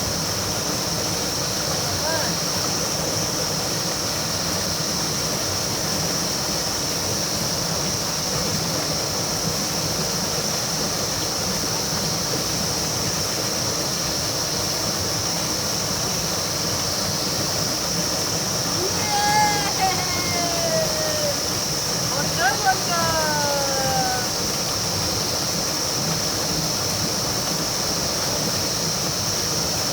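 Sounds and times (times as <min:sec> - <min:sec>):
river water rushing: 0:17.4 - 0:29.9.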